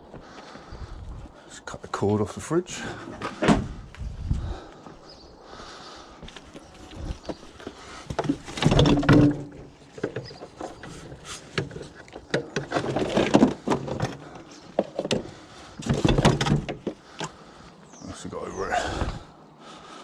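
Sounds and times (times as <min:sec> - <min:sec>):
metal scrap clunking and scraping: 0:07.7 - 0:17.0.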